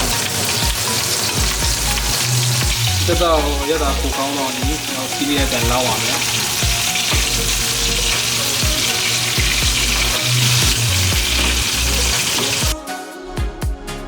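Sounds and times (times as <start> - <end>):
music with bass beat: 0.0 - 5.8, 6.6 - 14.0
chicken sizzling in hot oil: 0.0 - 12.8.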